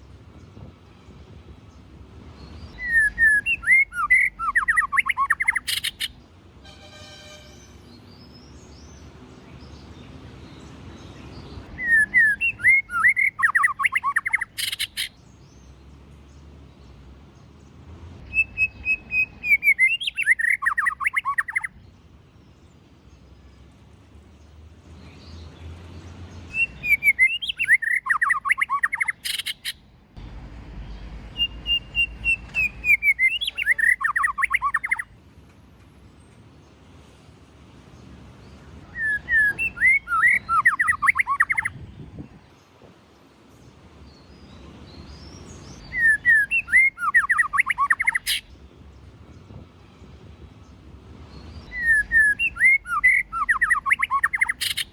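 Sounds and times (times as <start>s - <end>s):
songbird singing whistles: 2.6s - 6.2s, 11.7s - 15.2s, 18.2s - 21.8s, 26.5s - 29.8s, 31.3s - 35.1s, 38.9s - 41.8s, 45.1s - 48.5s, 51.5s - 54.9s.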